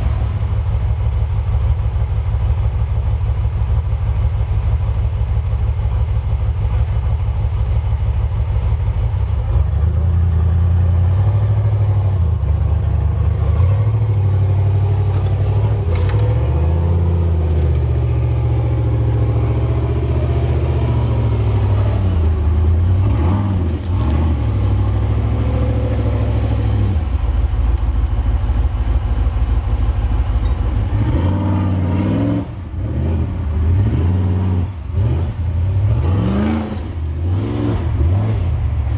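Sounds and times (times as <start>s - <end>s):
engine revving hard: 13.4s - 27.2s, 30.9s - 38.9s.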